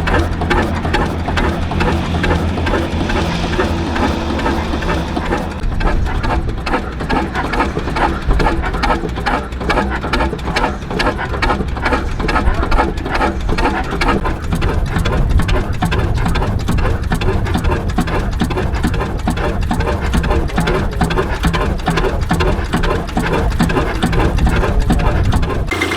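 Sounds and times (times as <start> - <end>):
stationary engine clattering: 0.0 - 25.9.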